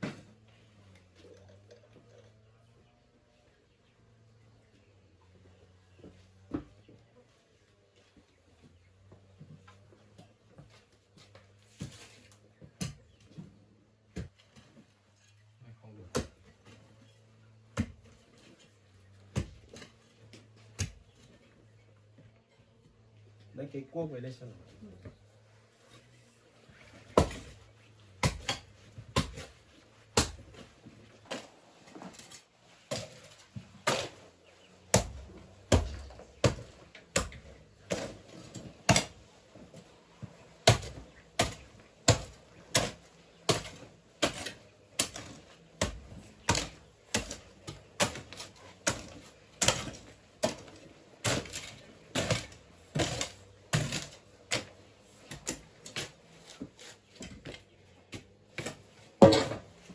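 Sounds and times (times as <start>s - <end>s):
hoe striking earth: 26.9s - 59.9s.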